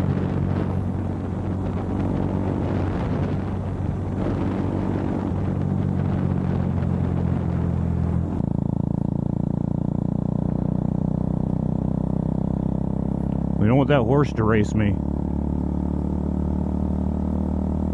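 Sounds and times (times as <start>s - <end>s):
wind on microphone: 0.0s - 8.4s
motorcycle engine running: 0.0s - 17.9s.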